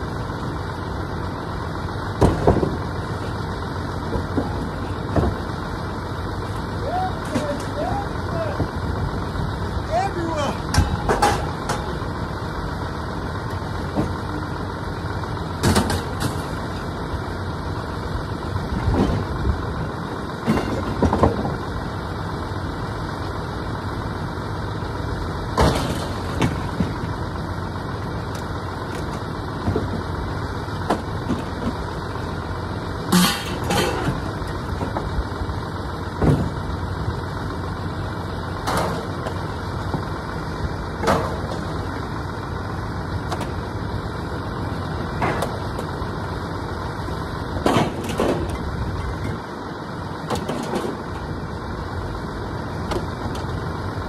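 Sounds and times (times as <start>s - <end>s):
vehicle engine idling: 0.0s - 54.0s
scrap metal clanking: 33.1s - 34.4s.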